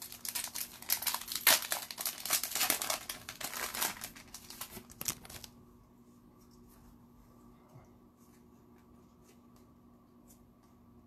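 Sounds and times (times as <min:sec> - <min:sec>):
plastic wrapper crinkling: 0:00.0 - 0:05.6.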